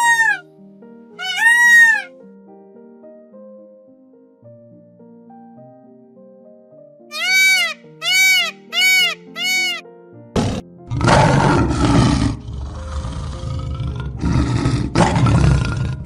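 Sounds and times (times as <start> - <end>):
high arching animal calls: 0.0 - 0.4, 1.2 - 2.1, 7.1 - 9.8
deep rough roars: 10.4 - 16.0.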